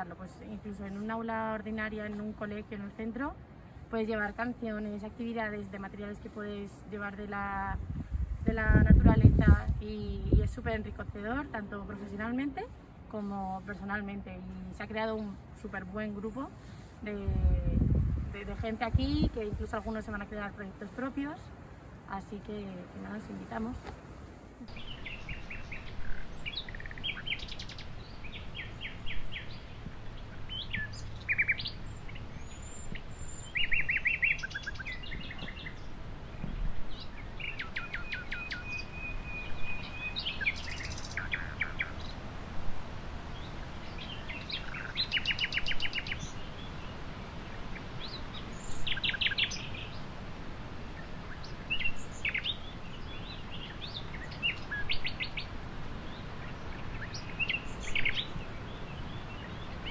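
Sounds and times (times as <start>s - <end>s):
birds trilling and chirping: 24.7s - 42.3s, 43.2s - 59.9s.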